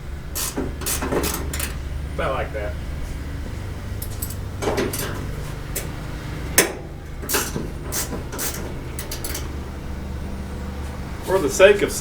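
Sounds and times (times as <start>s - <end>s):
steady low hum: 0.0s - 12.0s
metal tools clinking and knocking: 0.4s - 1.8s, 4.0s - 9.6s.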